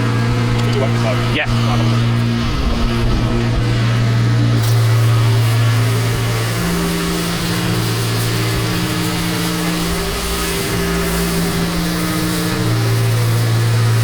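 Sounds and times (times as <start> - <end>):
pressure washer engine: 0.0 - 14.0
water spray hissing: 0.0 - 14.0.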